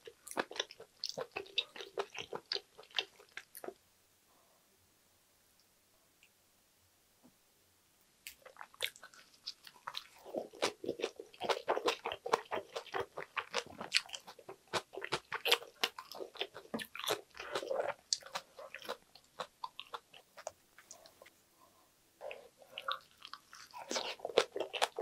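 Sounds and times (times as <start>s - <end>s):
close chewing with mouth clicks: 0.0s - 3.8s, 8.2s - 21.3s, 22.2s - 25.0s.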